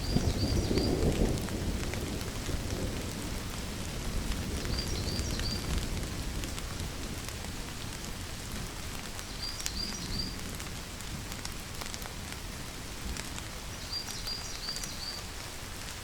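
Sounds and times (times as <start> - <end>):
low thunder rumble: 0.0 - 7.4
steady rainfall: 0.0 - 16.0.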